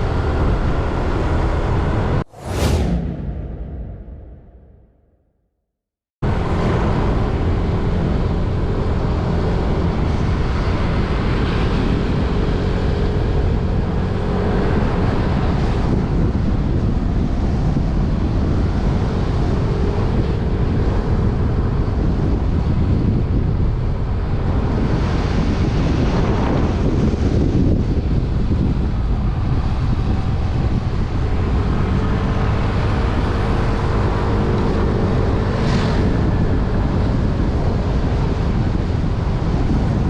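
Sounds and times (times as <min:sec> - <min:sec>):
wind rushing over microphone: 0:00.0 - 0:05.0, 0:06.2 - 0:40.0.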